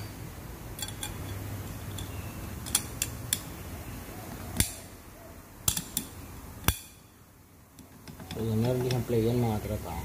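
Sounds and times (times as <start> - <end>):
metal snap ring clicking: 0.8 - 3.5, 4.6 - 4.9, 5.6 - 7.0.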